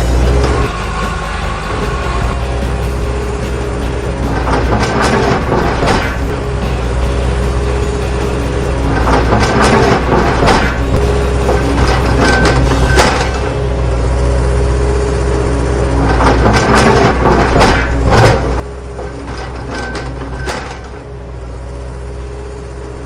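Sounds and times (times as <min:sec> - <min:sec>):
heavy vehicle engine running: 0:00.0 - 0:23.0
clicks and clatter: 0:04.1 - 0:13.6, 0:16.0 - 0:21.1.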